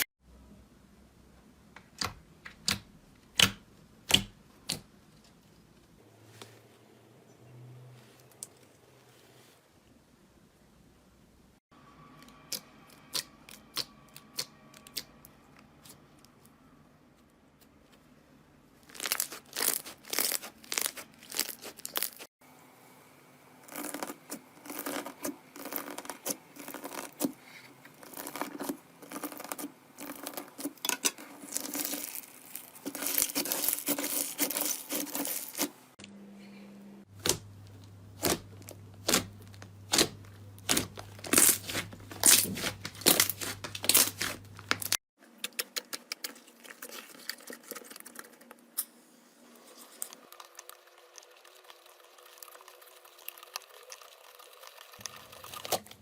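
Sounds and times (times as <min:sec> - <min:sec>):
slime crackling and popping: 0:18.8 - 0:22.3, 0:31.4 - 0:35.7, 0:38.2 - 0:45.0.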